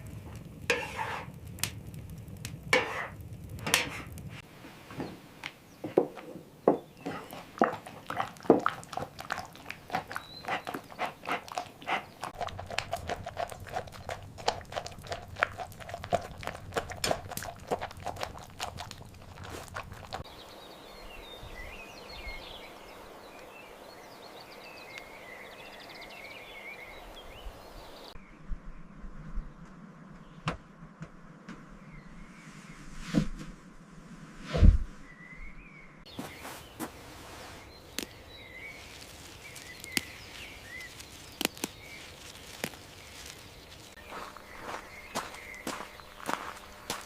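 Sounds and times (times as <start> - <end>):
horse hooves clopping: 5.9 - 20.3, 38.0 - 47.0.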